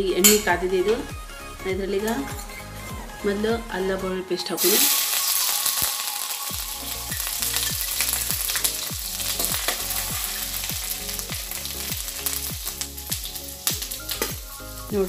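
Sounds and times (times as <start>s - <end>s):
low beat: 0.0s - 4.2s, 6.5s - 15.0s
garlic sizzling in hot oil: 4.6s - 15.0s
steel spoon stirring: 4.7s - 14.6s.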